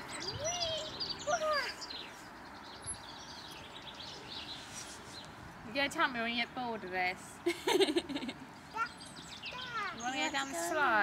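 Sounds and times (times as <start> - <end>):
rising and falling bird calls: 0.0 - 5.4
small birds chirping: 0.0 - 11.0.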